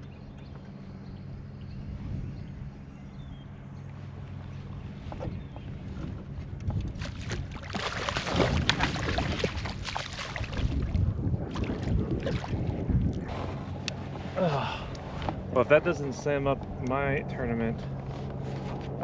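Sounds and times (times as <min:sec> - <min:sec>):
wind buffeting microphone: 0:00.0 - 0:19.0
water splashing against kayak: 0:04.0 - 0:14.4.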